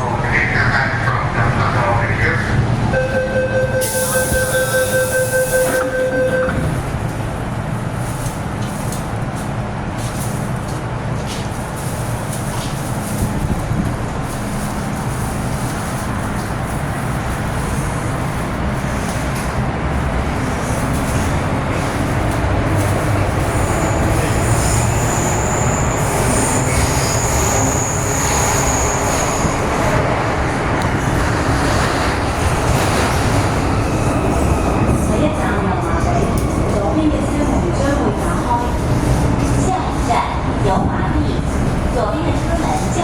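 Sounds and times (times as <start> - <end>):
train wheels rumbling on rail: 0.0 - 43.0
high wheel squeal: 3.0 - 6.7, 23.4 - 29.8.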